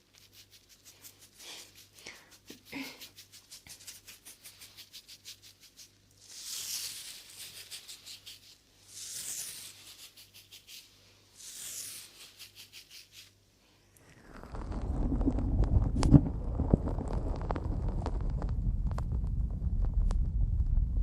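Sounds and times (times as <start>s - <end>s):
fast scratching or brushing: 0.0s - 13.4s.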